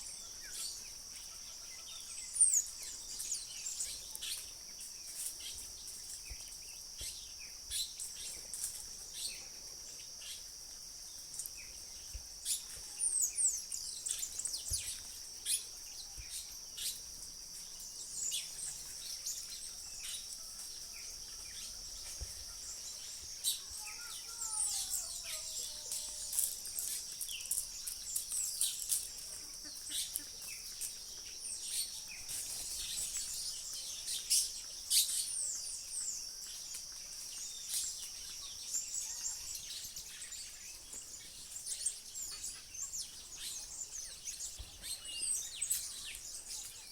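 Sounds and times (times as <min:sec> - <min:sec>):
high insect drone: 0:04.8 - 0:40.7
birds chirping: 0:11.4 - 0:36.3.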